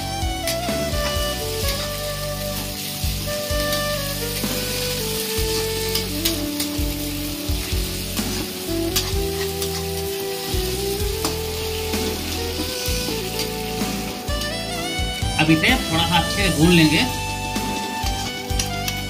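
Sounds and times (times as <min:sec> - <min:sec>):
onions sizzling in hot oil: 0:00.0 - 0:19.0
metal spatula scraping pan: 0:07.8 - 0:10.6.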